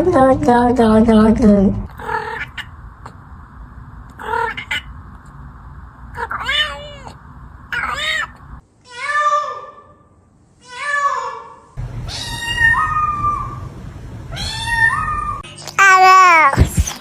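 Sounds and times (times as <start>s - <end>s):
cat meowing: 6.2s - 9.7s, 10.6s - 13.7s, 14.3s - 15.4s.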